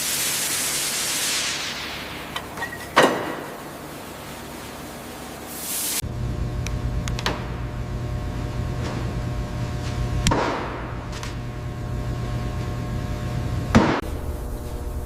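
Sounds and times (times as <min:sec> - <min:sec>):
steady low hum: 0:03.4 - 0:15.0.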